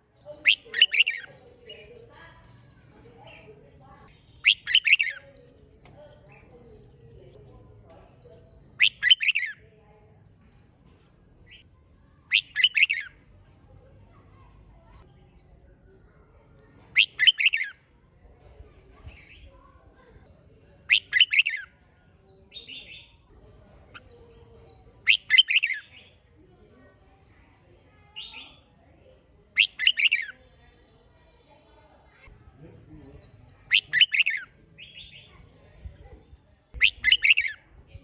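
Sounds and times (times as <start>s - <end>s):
bird singing warbled phrases: 0.0s - 10.7s, 11.4s - 13.2s, 14.1s - 18.0s, 18.6s - 38.0s
faint bird chirps: 0.0s - 10.7s, 11.4s - 13.2s, 14.1s - 18.0s, 20.9s - 23.3s, 23.9s - 26.4s, 28.1s - 32.3s, 33.0s - 38.0s.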